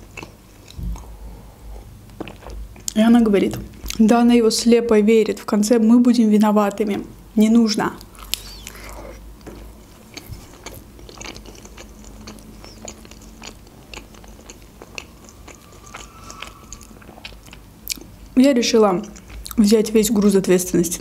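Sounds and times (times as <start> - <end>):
biting and chewing crisp food: 8.0 - 18.1.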